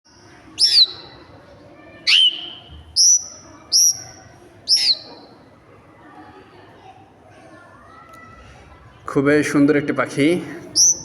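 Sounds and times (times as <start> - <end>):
bird whistling sharply: 0.6 - 1.2, 2.1 - 4.0, 4.7 - 5.3, 10.8 - 11.0.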